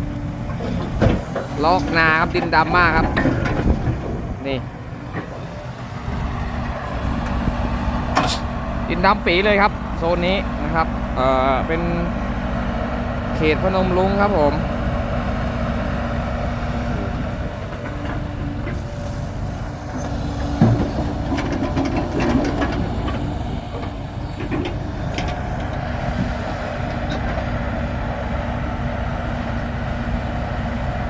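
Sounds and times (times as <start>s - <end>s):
excavator diesel engine running: 0.0s - 31.0s
metal clanks and knocks: 0.5s - 5.7s, 20.0s - 27.5s.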